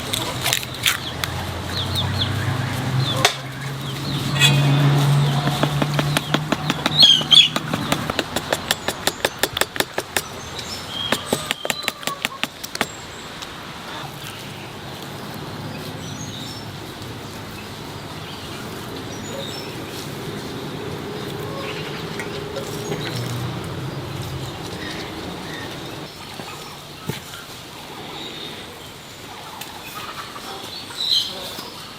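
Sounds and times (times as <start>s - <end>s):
bird chirps: 3.0s - 13.3s
rapid sharp knocks: 5.2s - 10.4s.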